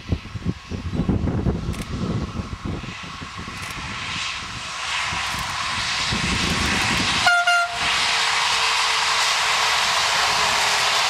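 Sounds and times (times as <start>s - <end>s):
diesel train engine approaching: 0.0s - 11.0s
train horn blast: 7.1s - 7.9s.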